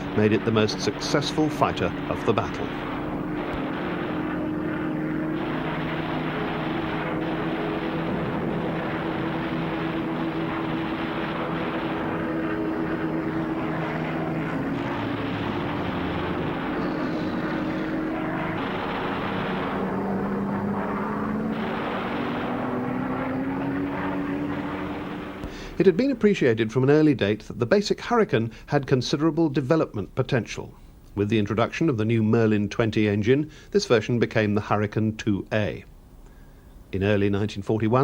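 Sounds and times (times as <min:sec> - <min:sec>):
aircraft piston engine droning: 0:00.0 - 0:26.6.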